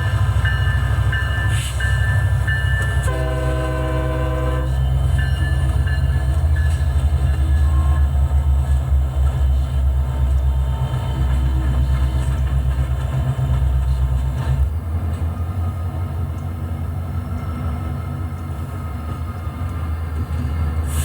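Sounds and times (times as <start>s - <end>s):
locomotive engine rumbling: 0.0s - 21.0s.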